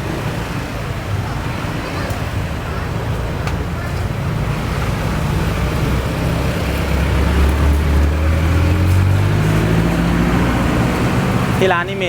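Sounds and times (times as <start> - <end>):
traffic noise: 0.0 - 12.0
vehicle engine accelerating: 4.2 - 12.0.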